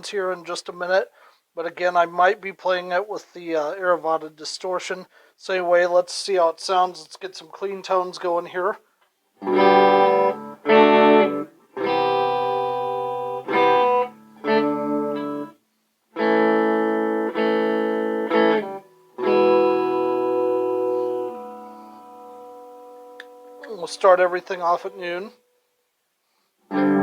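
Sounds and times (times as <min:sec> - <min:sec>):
clean electric guitar chords: 0:09.4 - 0:15.6, 0:16.2 - 0:25.4, 0:26.7 - 0:27.0.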